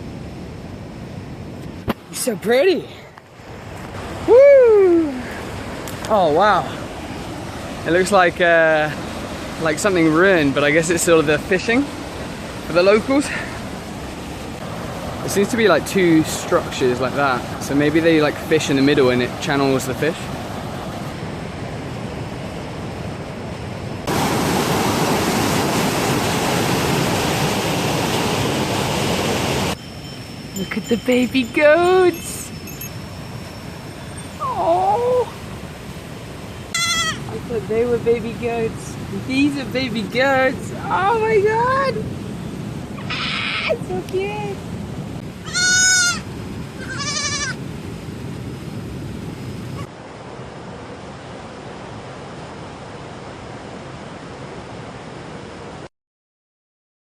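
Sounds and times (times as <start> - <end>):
waterfall rushing: 3.9 - 21.1, 24.0 - 29.8
steady background hiss: 9.6 - 21.0
baby goats bleating: 36.7 - 37.3, 45.4 - 46.2, 46.8 - 47.6.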